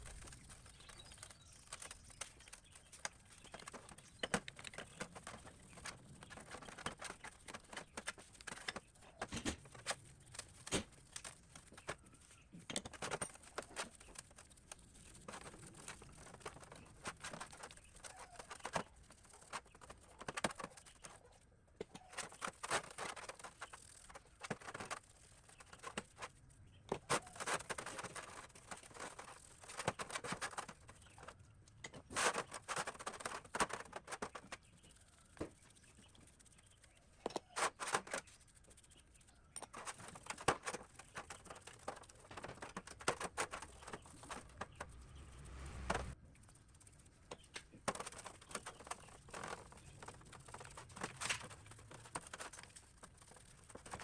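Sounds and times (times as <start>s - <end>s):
scraping and rubbing metal parts: 27.0s - 54.0s.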